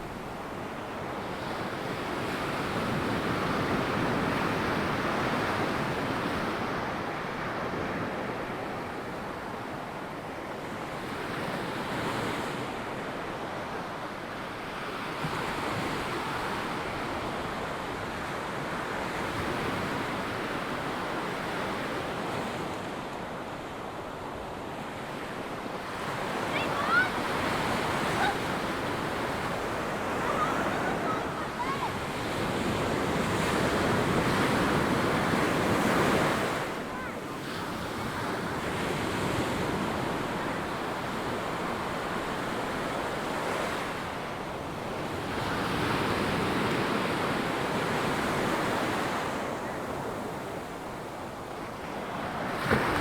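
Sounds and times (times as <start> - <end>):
waves breaking on beach: 0.0 - 53.0.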